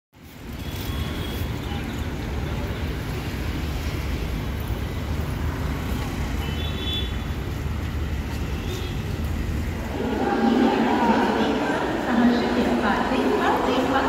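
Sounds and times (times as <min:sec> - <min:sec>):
train rumbling: 0:07.2 - 0:14.0.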